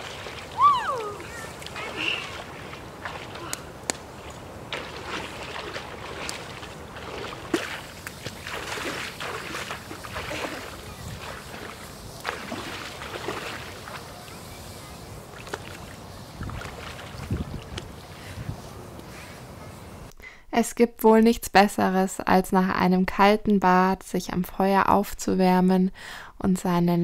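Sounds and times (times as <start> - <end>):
river water splashing: 0.0 - 19.9.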